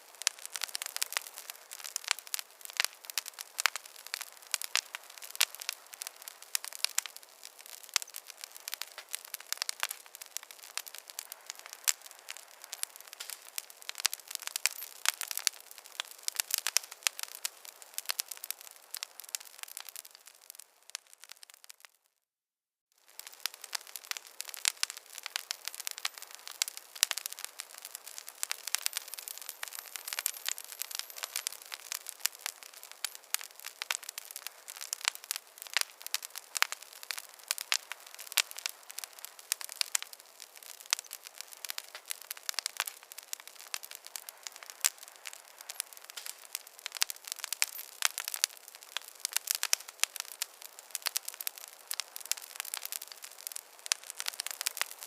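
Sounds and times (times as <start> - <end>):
fire crackling: 0.0 - 22.0, 23.0 - 55.0.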